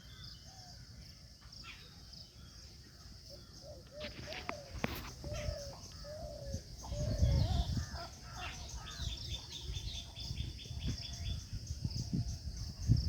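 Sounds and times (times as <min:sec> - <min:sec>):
bird chirps: 0:00.0 - 0:13.0
bird low arched call: 0:03.6 - 0:09.8.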